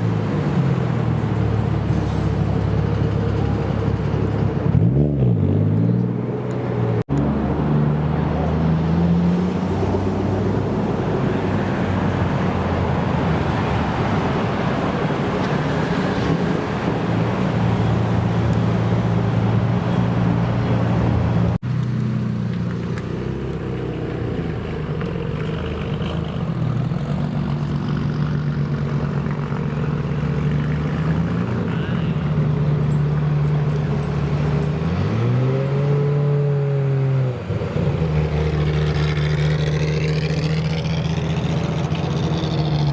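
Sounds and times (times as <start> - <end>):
car engines idling: 10.4 - 35.4, 37.3 - 42.9.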